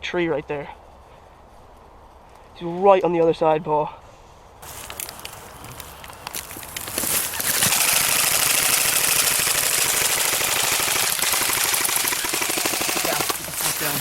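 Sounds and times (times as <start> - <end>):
airsoft rifle full-auto fire: 7.4 - 13.7.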